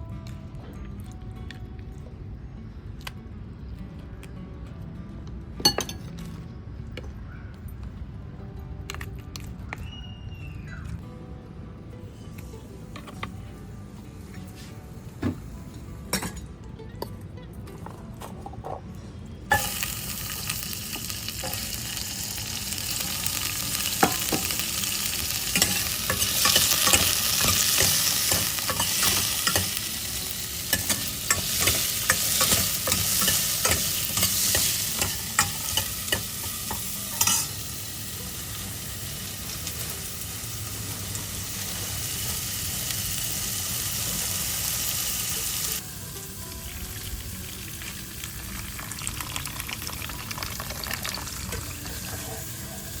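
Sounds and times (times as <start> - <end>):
food sizzling in a pan: 19.5 - 53.0.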